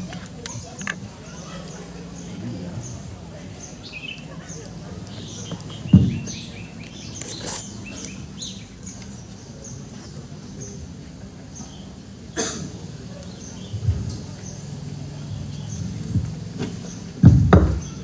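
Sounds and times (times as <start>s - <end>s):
birds chirping: 0.0s - 18.0s
dull thump: 5.9s - 6.4s, 16.2s - 18.0s.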